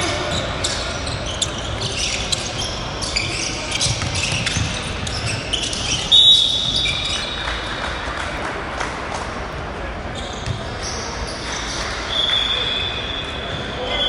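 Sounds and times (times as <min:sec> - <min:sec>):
sneakers squeaking: 0:00.0 - 0:08.0, 0:09.5 - 0:14.0
basketball bouncing: 0:03.7 - 0:07.2
high whistle blast: 0:06.1 - 0:07.0.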